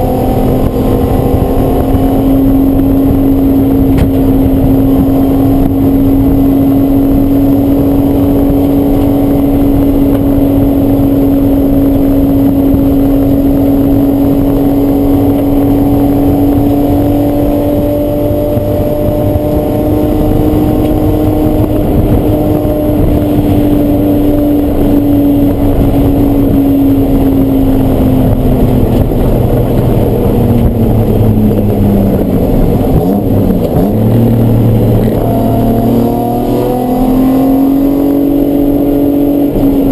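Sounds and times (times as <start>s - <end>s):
race car engine at high revs: 0.0s - 39.9s.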